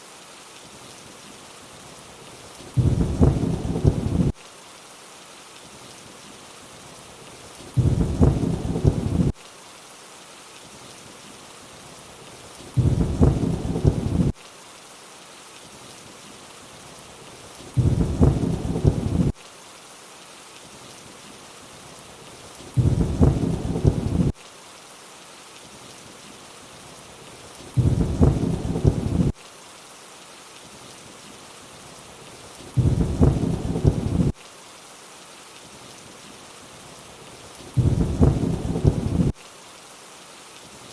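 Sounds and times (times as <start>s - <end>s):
steady rain hiss: 0.0s - 40.9s
low rumble of thunder: 2.8s - 4.3s, 7.8s - 9.4s, 12.8s - 14.4s, 17.8s - 19.3s, 22.8s - 24.3s, 27.8s - 29.4s, 32.8s - 34.4s, 37.8s - 39.4s.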